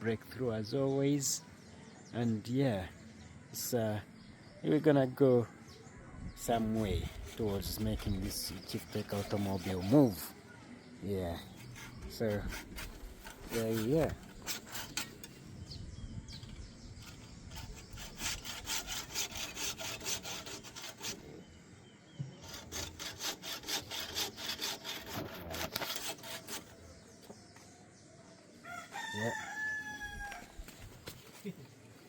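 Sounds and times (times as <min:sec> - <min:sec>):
hacksaw cutting metal bolts: 0:11.7 - 0:15.4, 0:22.4 - 0:26.6
rooster crowing: 0:28.6 - 0:30.7.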